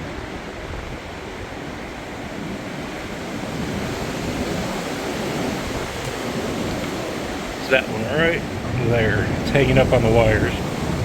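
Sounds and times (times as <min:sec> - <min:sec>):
storm wind gusting: 0:03.0 - 0:11.0.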